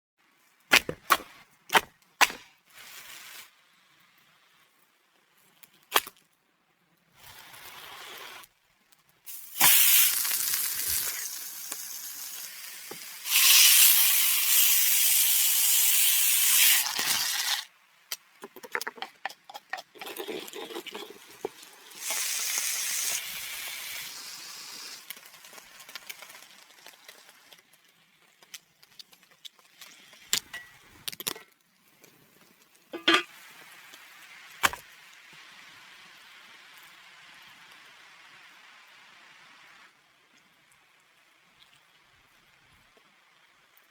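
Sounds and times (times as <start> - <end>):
loud hissing: 9.3 - 12.6
meat sizzling on a grill: 9.3 - 17.6, 21.0 - 27.6.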